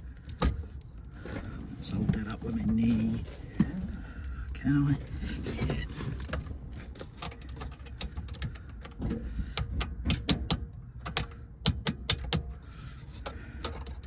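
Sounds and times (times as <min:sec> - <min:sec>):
hand tools clicking on metal: 0:07.0 - 0:12.6.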